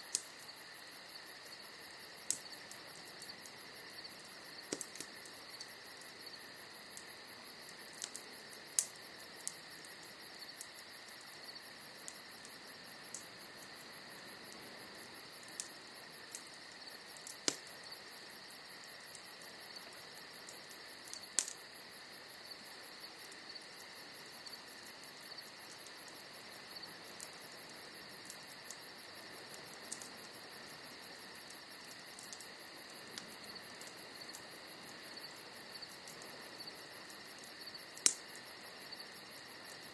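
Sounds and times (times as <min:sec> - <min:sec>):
fire pops: 0:00.0 - 0:00.4, 0:02.2 - 0:06.1, 0:06.9 - 0:10.7, 0:15.4 - 0:17.9, 0:19.1 - 0:21.6, 0:37.4 - 0:38.4
bonfire crackling: 0:00.0 - 0:39.9
night insects chirring: 0:00.0 - 0:39.9.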